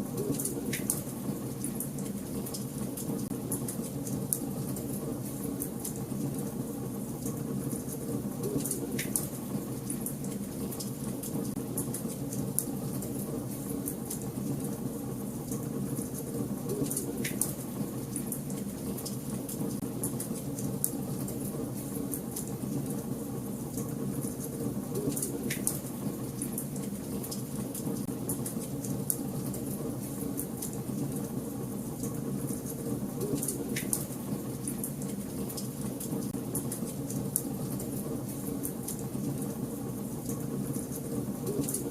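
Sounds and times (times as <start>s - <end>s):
wood fire crackling and popping: 7.2s - 12.8s, 32.0s - 38.0s.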